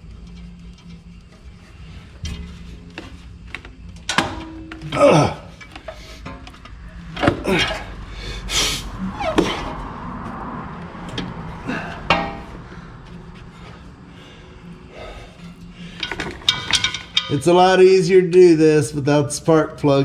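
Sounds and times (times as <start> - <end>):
metal tools clanking: 0.0 - 8.1, 11.0 - 14.0, 15.0 - 18.4.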